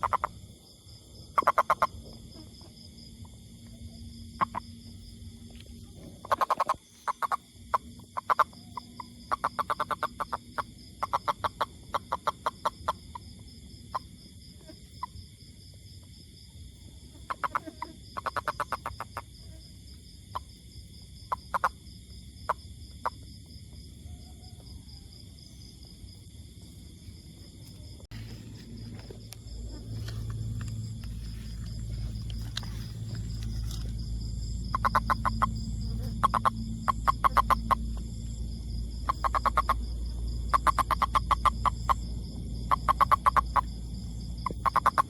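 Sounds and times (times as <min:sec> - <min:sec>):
toad calling in rapid pulses: 0:00.0 - 0:00.4, 0:01.3 - 0:02.6, 0:03.8 - 0:04.9, 0:06.2 - 0:15.2, 0:17.2 - 0:19.6, 0:21.2 - 0:23.3, 0:31.6 - 0:45.0.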